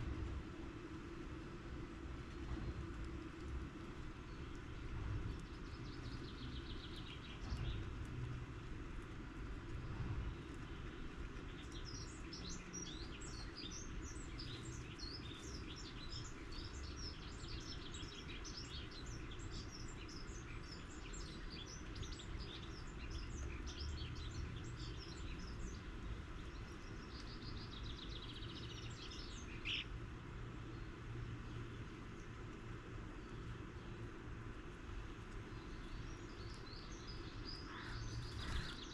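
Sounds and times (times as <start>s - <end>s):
rapid rattle of ticks: 0.0s - 29.7s
low background rumble: 0.0s - 38.9s
small birds chirping: 0.5s - 38.9s.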